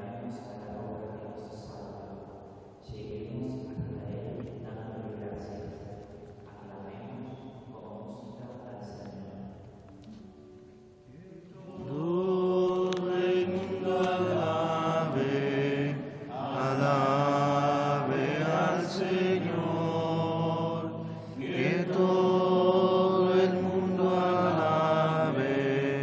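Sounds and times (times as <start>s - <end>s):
congregation singing a chant: 11.1s - 26.0s.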